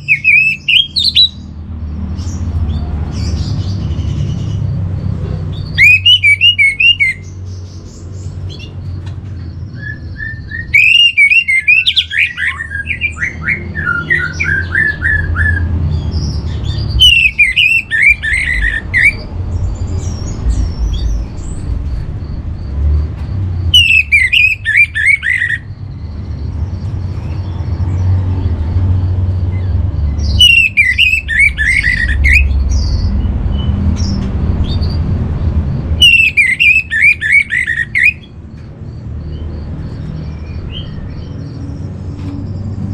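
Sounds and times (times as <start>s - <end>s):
steady low rumble: 18.1s - 23.8s.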